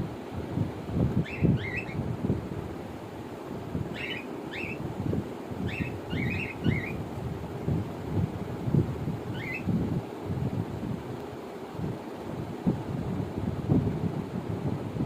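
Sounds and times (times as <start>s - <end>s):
wind buffeting microphone: 0.0s - 15.0s
cockatiels chirping: 1.3s - 2.0s, 4.0s - 4.8s, 5.7s - 7.0s, 9.4s - 9.7s.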